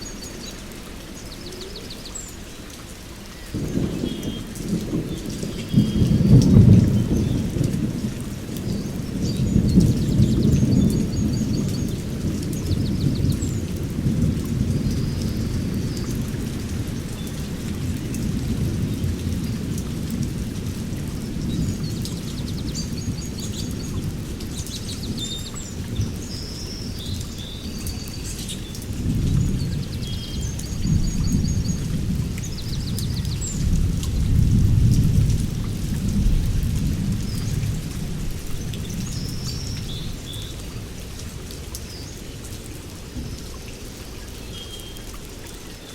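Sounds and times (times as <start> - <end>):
rain falling: 0.0 - 45.9
low rolling thunder: 3.5 - 26.3, 28.9 - 40.2.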